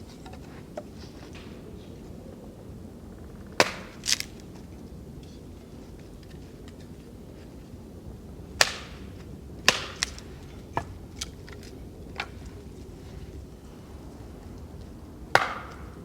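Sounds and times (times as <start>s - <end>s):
sharp blows on wood: 9.7s - 10.9s, 15.4s - 16.0s.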